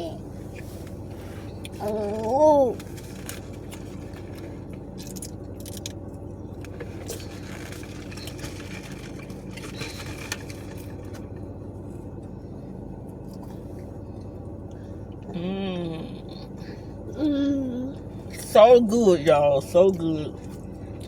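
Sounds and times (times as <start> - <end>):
low mechanical hum: 0.0 - 21.0
small clicks and scrapes: 2.8 - 6.0, 6.6 - 11.2.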